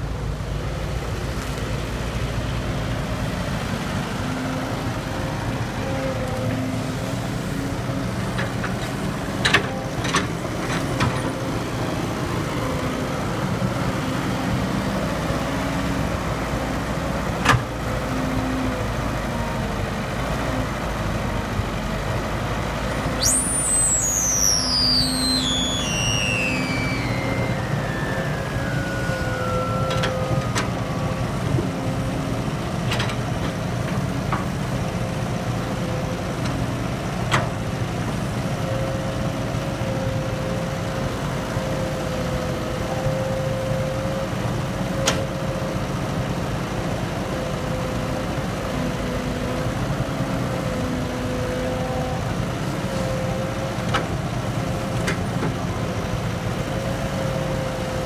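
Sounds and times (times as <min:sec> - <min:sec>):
excavator diesel engine running: 0:00.0 - 0:58.0
wavering whine: 0:23.1 - 0:32.7.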